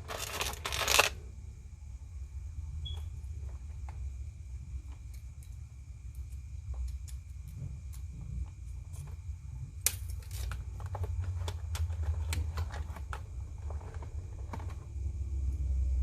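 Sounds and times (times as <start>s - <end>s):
toy packaging crackling: 0.0s - 1.2s.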